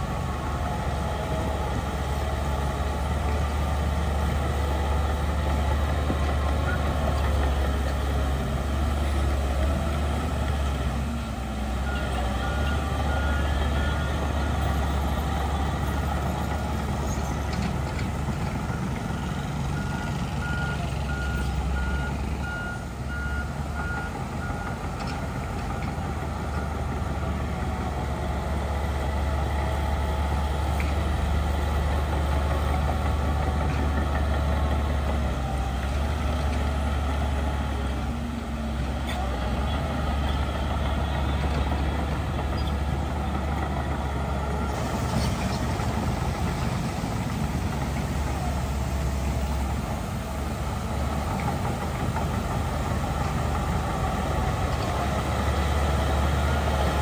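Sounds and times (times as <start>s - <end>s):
heavy diesel engine running: 0.0s - 57.0s
reversing alarm beeping: 18.6s - 24.8s.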